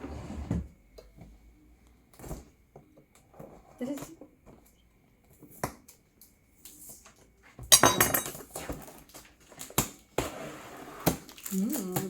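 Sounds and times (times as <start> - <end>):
hard objects clinking and rattling: 7.7 - 8.6, 11.2 - 12.0.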